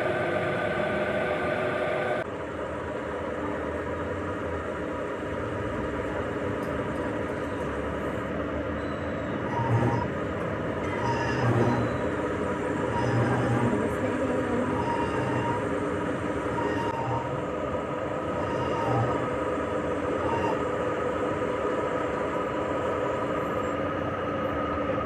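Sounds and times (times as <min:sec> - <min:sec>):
high squeals: 0:00.0 - 0:02.2, 0:14.6 - 0:15.8, 0:16.4 - 0:17.4, 0:18.3 - 0:19.4, 0:20.1 - 0:20.8
heavy machinery rumbling and rattling: 0:00.0 - 0:25.0.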